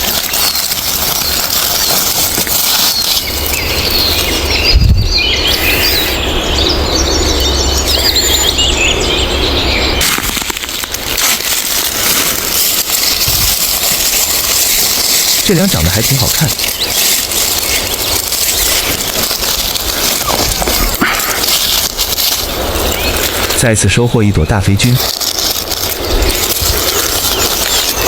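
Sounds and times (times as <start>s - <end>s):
loud steady noisy background: 0.0s - 28.0s
small birds chirping: 0.0s - 28.0s.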